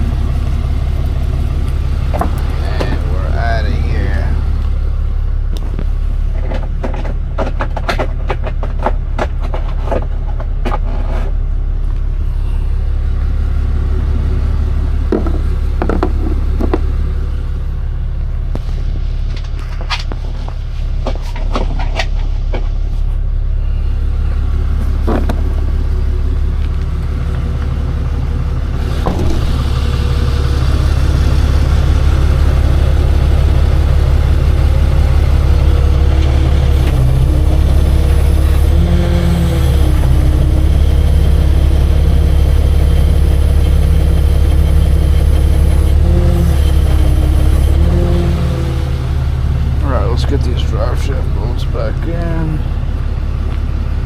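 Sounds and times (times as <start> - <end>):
truck engine idling: 0.0 - 54.0.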